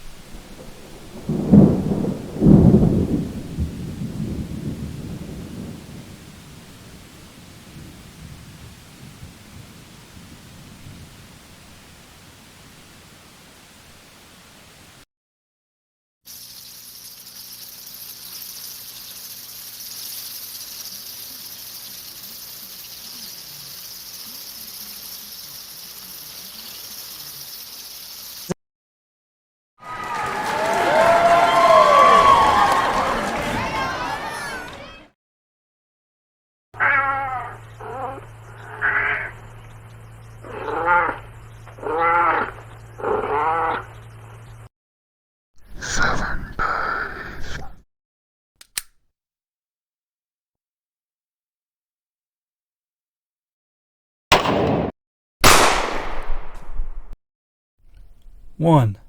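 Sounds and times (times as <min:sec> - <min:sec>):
thunder cracks: 0:00.0 - 0:11.2, 0:54.4 - 0:56.9
low thunder rumble: 0:00.0 - 0:12.8
insects chorus: 0:16.3 - 0:28.5, 0:37.2 - 0:44.7
short sharp click: 0:48.6 - 0:49.0.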